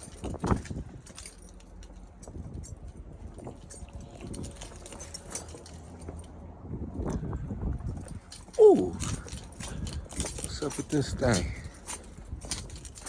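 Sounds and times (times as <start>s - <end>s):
light clicks and clinks: 0.0s - 6.4s, 7.0s - 13.0s
low steady rumble: 0.0s - 13.0s.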